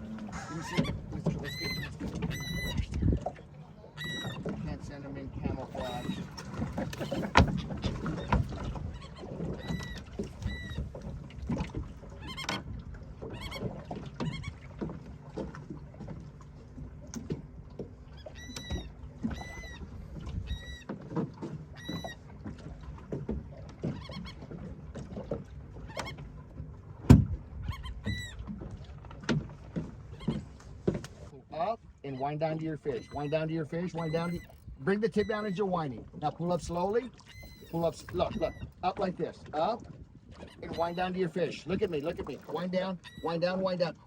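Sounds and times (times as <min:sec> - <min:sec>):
bird calling: 0:00.0 - 0:04.8, 0:05.5 - 0:11.0, 0:12.1 - 0:14.7, 0:18.0 - 0:21.0, 0:21.6 - 0:22.4, 0:23.8 - 0:24.6, 0:25.8 - 0:26.4, 0:27.6 - 0:28.5, 0:30.0 - 0:31.3, 0:32.1 - 0:39.0, 0:40.4 - 0:44.0
water lapping at boat: 0:00.0 - 0:44.0
knocks against boat hull: 0:06.6 - 0:08.6, 0:27.0 - 0:27.4.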